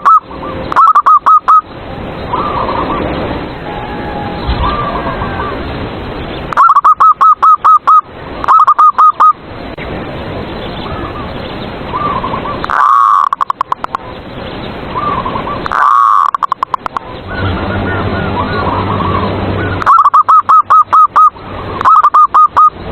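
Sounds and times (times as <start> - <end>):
doves cooing: 0.0 - 1.7, 2.3 - 5.8, 6.5 - 9.4, 11.9 - 14.1, 15.0 - 22.8.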